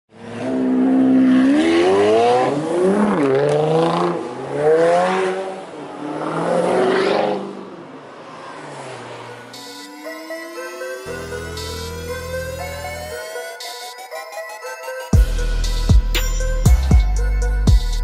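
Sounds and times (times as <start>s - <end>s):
car engine revving hard: 0.2s - 7.7s.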